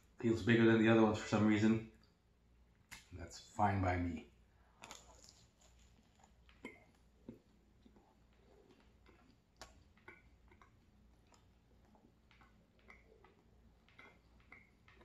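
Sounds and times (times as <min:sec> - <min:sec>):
faint chewing mouth clicks: 0:04.6 - 0:15.0.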